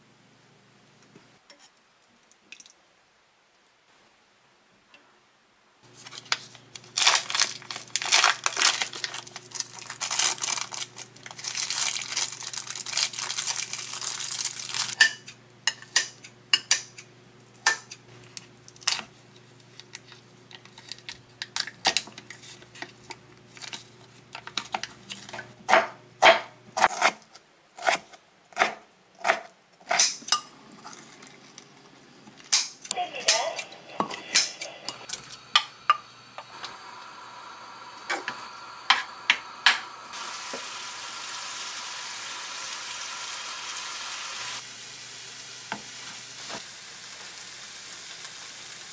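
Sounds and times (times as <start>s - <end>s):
rustling and crinkling: 5.8s - 15.0s
utensils and dishes tapping: 14.9s - 17.0s
steady low hum: 32.0s - 41.4s.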